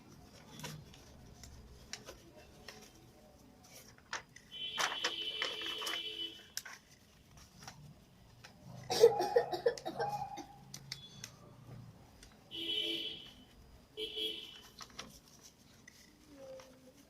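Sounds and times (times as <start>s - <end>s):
paper rustling and creasing: 0.0s - 8.8s, 14.5s - 17.0s
person giggling: 8.9s - 10.5s.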